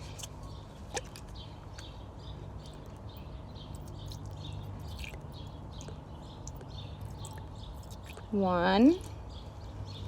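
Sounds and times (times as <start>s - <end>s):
small animal chirping: 2.6s - 8.3s.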